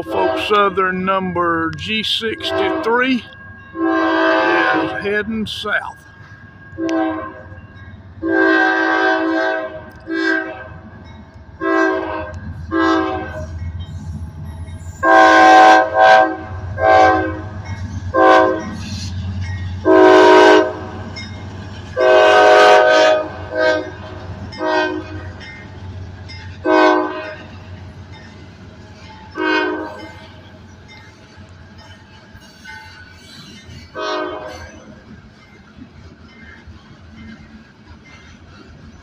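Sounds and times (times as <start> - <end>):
locomotive air horn blasts: 0.0 - 0.6, 2.4 - 3.0, 3.8 - 5.0, 6.8 - 7.5, 8.2 - 10.8, 11.6 - 13.5, 15.0 - 17.5, 18.1 - 18.7, 19.8 - 21.0, 22.0 - 24.0, 24.6 - 25.2, 26.6 - 27.6, 29.4 - 30.1, 33.9 - 34.7
freight train rumbling: 0.0 - 39.0.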